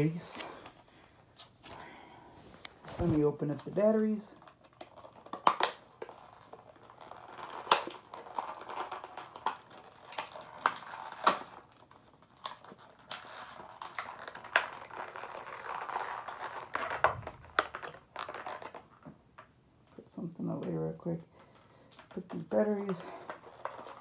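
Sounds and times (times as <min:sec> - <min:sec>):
plastic packaging crinkling: 0:00.0 - 0:19.5, 0:21.4 - 0:24.0.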